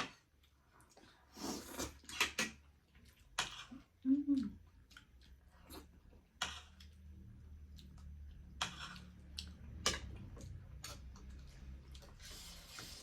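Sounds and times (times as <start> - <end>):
slurping noodles: 1.2 - 2.4.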